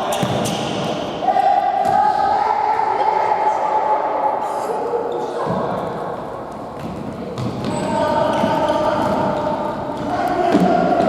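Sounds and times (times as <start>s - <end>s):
players and spectators shouting: 1.0s - 4.4s.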